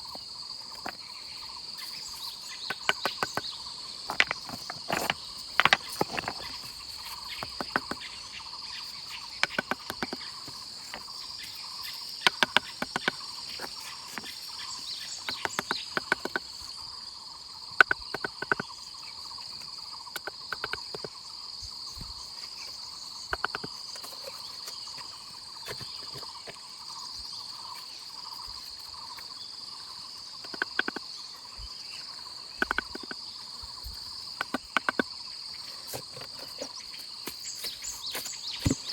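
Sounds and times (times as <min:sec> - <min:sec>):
insects droning: 0:00.0 - 0:38.9
sharp knocks and clicks: 0:02.6 - 0:08.1, 0:09.3 - 0:11.1, 0:12.2 - 0:14.4, 0:15.1 - 0:16.5, 0:17.8 - 0:18.7, 0:20.1 - 0:21.2, 0:23.3 - 0:24.2, 0:30.4 - 0:31.1, 0:32.6 - 0:33.2, 0:34.3 - 0:35.1.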